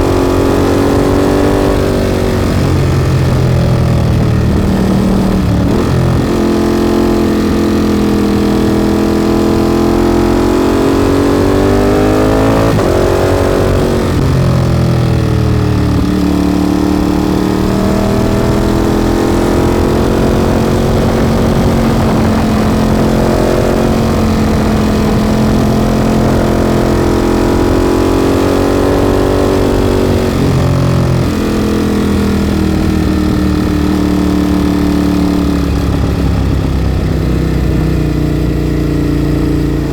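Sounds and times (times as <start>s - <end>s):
motorcycle engine accelerating: 0.0s - 39.9s
motorcycle gear changes: 17.0s - 39.9s.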